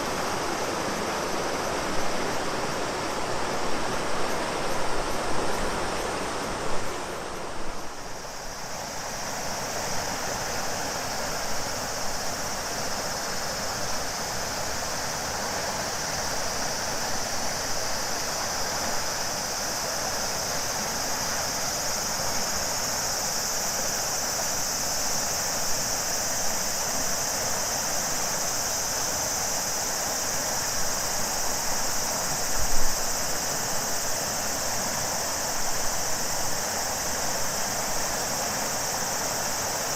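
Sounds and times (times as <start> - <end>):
cicadas droning: 0.0 - 39.9
river water rushing: 0.0 - 39.9.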